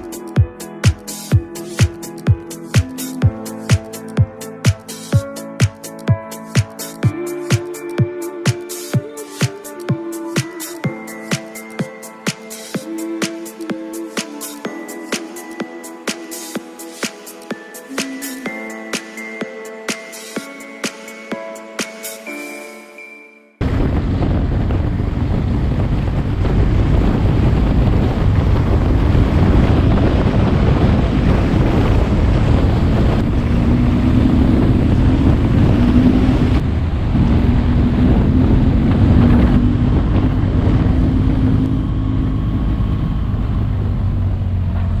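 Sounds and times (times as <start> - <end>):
heavy wind noise on microphone: 23.6 - 45.0
motorcycle engine: 23.6 - 45.0.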